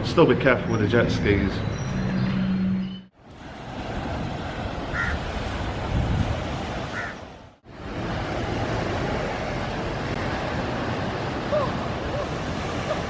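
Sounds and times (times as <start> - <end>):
surf washing onto beach: 3.2 - 13.0
wind buffeting microphone: 3.4 - 10.0.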